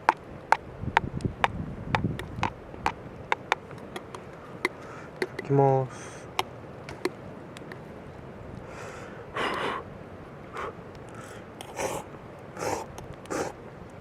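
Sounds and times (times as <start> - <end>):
breathy puffs and sniffs: 8.7 - 9.8, 10.6 - 13.6.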